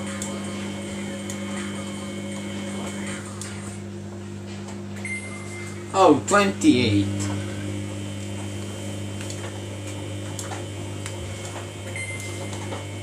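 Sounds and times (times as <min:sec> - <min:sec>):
washing machine hum: 0:00.0 - 0:13.0
high tone beep: 0:05.0 - 0:05.7.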